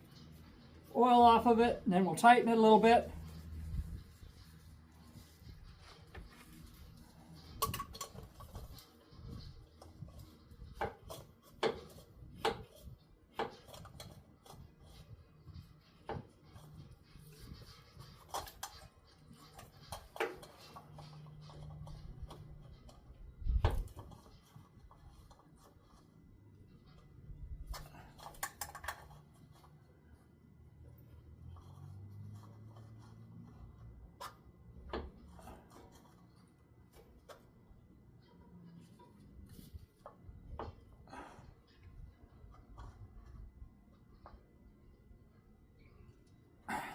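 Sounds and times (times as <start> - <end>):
hands and tools clicking: 6.0 - 9.1, 26.9 - 29.8.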